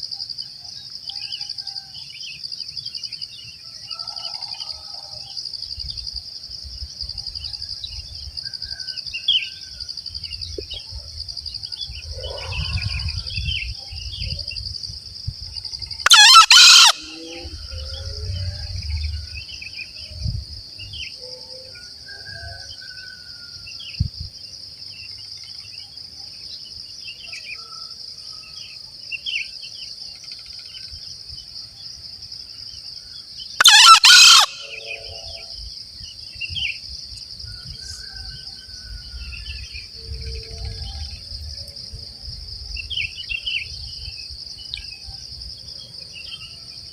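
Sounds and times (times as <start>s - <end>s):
high insect drone: 0.0s - 46.9s
junglefowl crowing: 16.0s - 18.1s, 33.6s - 35.4s
faint small bird calls: 16.0s - 18.5s, 33.6s - 35.4s.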